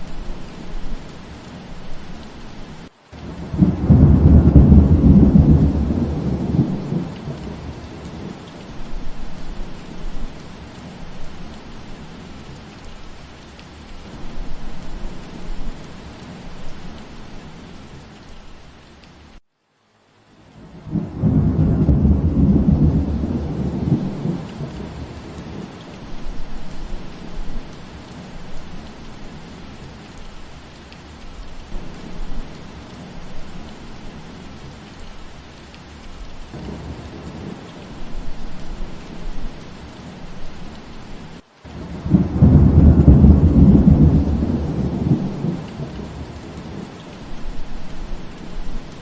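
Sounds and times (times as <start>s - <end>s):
steady rain falling: 0.0s - 49.0s
thunder rumbling: 3.2s - 11.4s, 20.6s - 28.9s, 36.5s - 40.4s, 41.7s - 49.0s.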